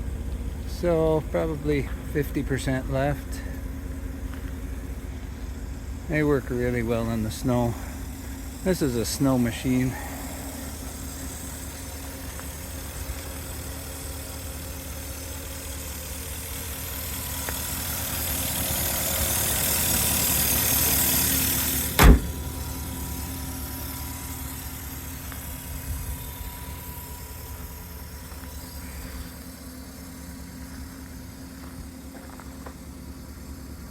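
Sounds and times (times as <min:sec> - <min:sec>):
car engine idling: 0:00.0 - 0:33.9
hiss: 0:07.8 - 0:14.1
loud thump: 0:21.9 - 0:22.6.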